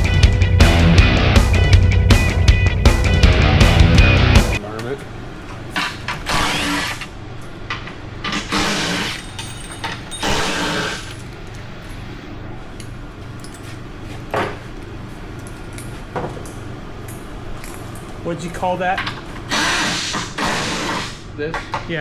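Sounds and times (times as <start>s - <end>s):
metal parts clinking and scraping: 8.2s - 12.1s.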